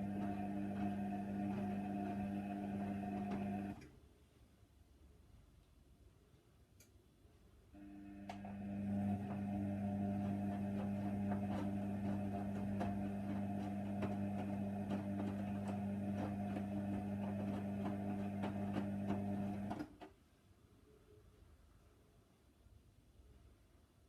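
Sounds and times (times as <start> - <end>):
washing machine motor hum: 0.0 - 3.9, 7.8 - 20.0.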